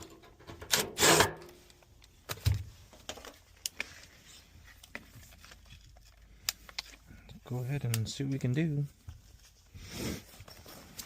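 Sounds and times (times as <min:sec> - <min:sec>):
loud scrape: 0:00.8 - 0:01.5.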